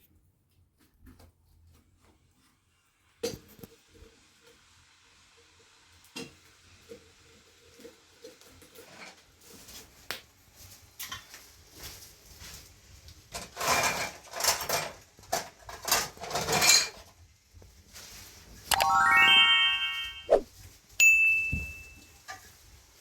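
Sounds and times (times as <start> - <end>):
ringing chime-like tone: 18.7 - 20.4, 21.0 - 22.1.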